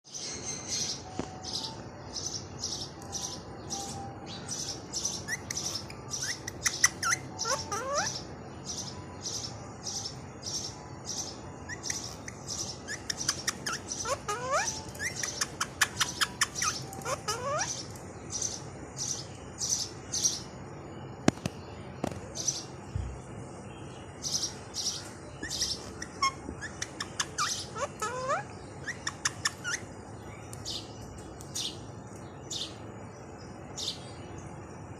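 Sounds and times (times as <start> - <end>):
parrots chirping: 4.8 - 8.3, 11.7 - 19.2, 24.3 - 29.9.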